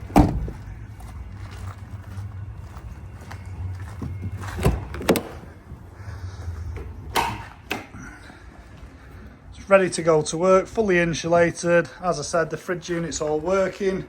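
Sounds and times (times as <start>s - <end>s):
metal door latches clunking: 0.0s - 0.6s, 4.2s - 5.6s, 6.7s - 8.0s.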